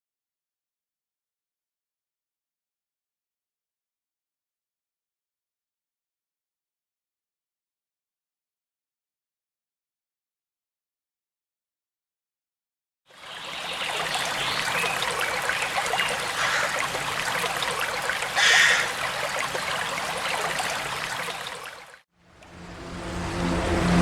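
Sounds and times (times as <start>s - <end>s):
stream water trickling and splashing: 13.1s - 24.0s.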